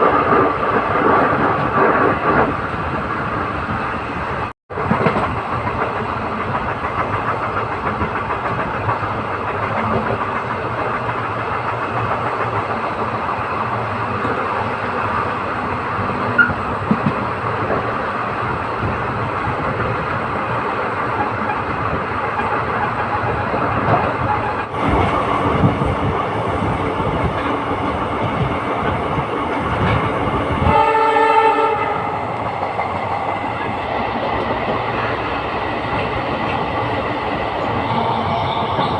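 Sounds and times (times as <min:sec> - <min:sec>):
train running noise: 0:00.0 - 0:38.9
locomotive horn: 0:30.6 - 0:32.1.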